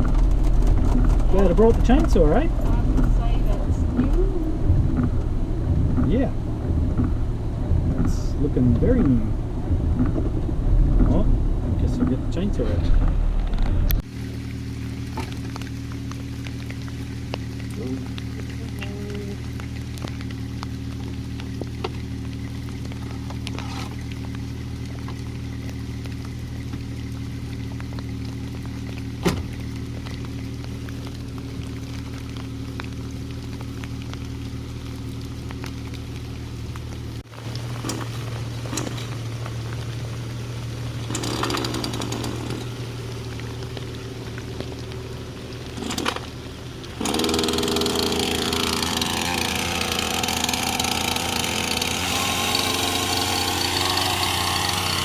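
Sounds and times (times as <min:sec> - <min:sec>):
car engine idling: 0:00.0 - 0:55.0
chainsaw running: 0:41.1 - 0:42.7, 0:47.0 - 0:55.0.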